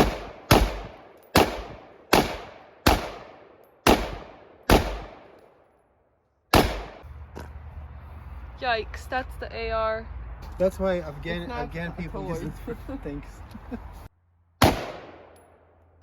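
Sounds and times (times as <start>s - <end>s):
rifle shots echoing: 0.0s - 5.6s, 6.5s - 7.0s, 14.6s - 15.4s.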